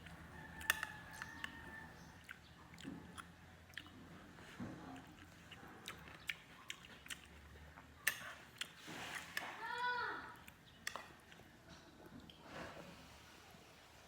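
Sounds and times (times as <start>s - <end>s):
person chewing food: 0.0s - 9.4s.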